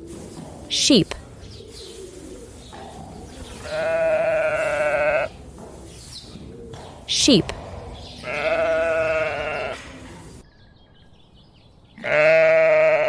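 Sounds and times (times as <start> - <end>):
sheep bleating: 2.5 - 10.4, 12.0 - 13.0.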